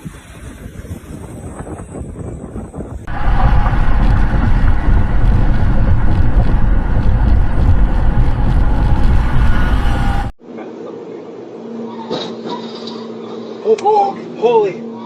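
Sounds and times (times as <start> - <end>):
wind buffeting microphone: 0.0 - 10.3
vehicle rumble: 3.0 - 10.4.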